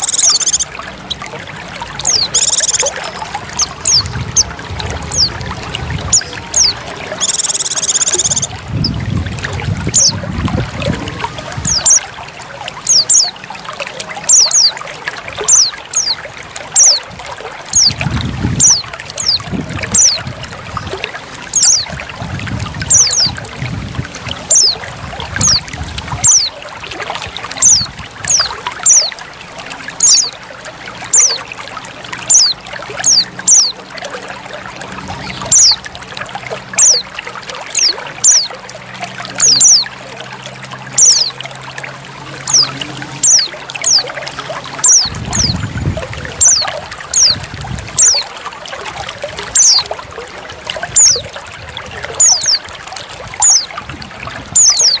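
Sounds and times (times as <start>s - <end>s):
bird calling in high notes: 0.0s - 1.3s, 1.9s - 9.0s, 39.2s - 40.2s, 40.9s - 41.5s, 42.4s - 45.6s
trickle of running water: 0.0s - 55.0s.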